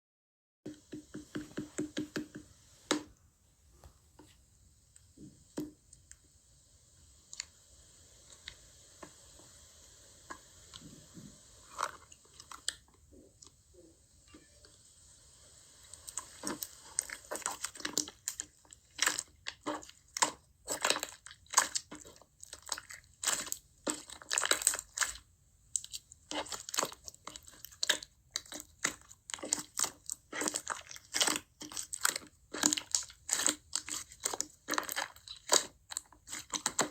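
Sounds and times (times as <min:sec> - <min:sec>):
slime squishing and popping: 0:16.0 - 0:36.9.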